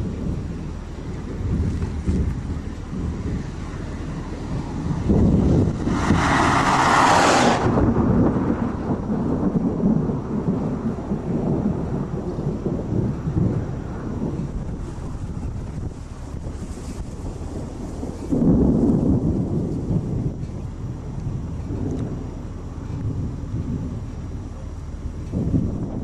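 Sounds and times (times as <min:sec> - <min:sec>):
thunder rumbling: 0:00.0 - 0:26.0
wind: 0:00.0 - 0:26.0
hissing rush: 0:05.0 - 0:09.0.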